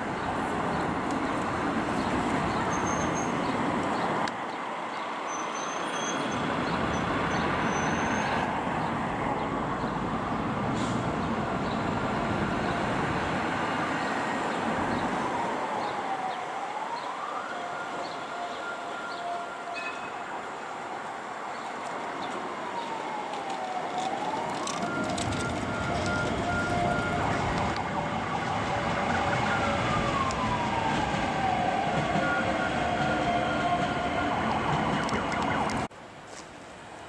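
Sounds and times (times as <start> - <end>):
passenger train rumbling on tracks: 24.3 - 35.9.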